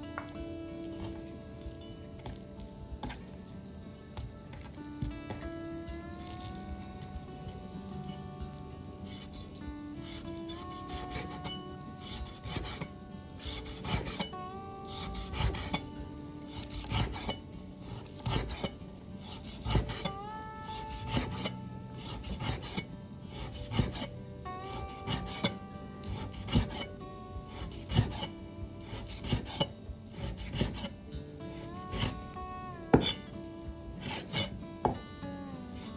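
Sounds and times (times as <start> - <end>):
background music: 0.0 - 35.9
spatula scraping a pan: 8.5 - 15.8, 16.4 - 33.3, 34.0 - 35.0.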